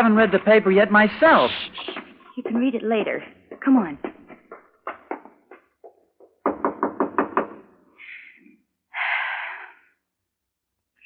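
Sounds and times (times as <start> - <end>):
knocking on door: 1.9 - 7.7.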